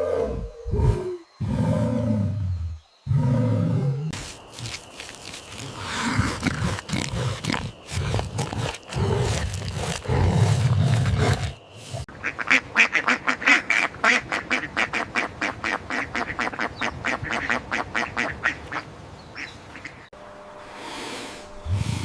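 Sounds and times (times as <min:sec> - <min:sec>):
low growling: 0:00.0 - 0:04.1.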